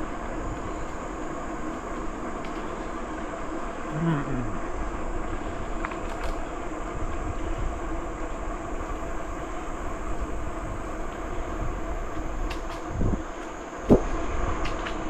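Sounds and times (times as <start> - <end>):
bicycle tyres rumbling: 0.0 - 15.0
steady high hiss: 0.0 - 15.0
wind on microphone: 4.3 - 15.0.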